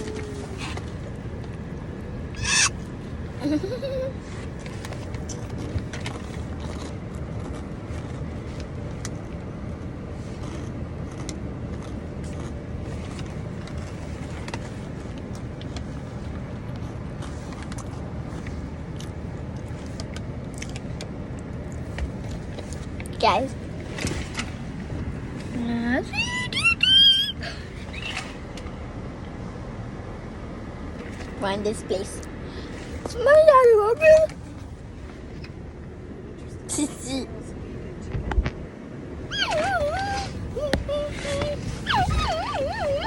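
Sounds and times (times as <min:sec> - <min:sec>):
low rumble of car cabin: 0:00.0 - 0:43.0
child squealing: 0:02.4 - 0:02.8, 0:26.1 - 0:28.2, 0:39.3 - 0:43.0
chips being crunched and chewed: 0:10.4 - 0:12.6.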